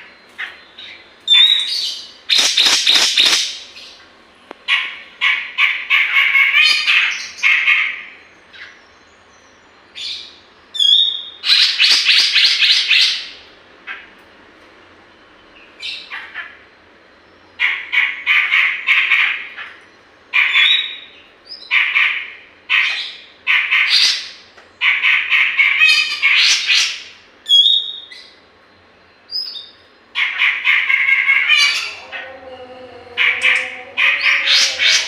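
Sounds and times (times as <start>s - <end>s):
bird chattering calls: 0.0s - 8.8s, 29.3s - 32.4s, 33.2s - 35.0s.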